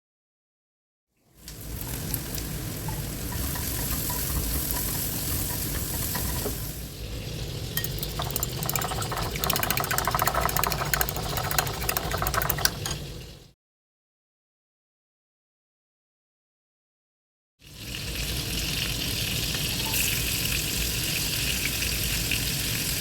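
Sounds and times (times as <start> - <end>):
food sizzling in a pan: 1.2 - 7.8, 17.6 - 23.0
spatula scraping pan: 2.8 - 6.9, 7.8 - 13.0.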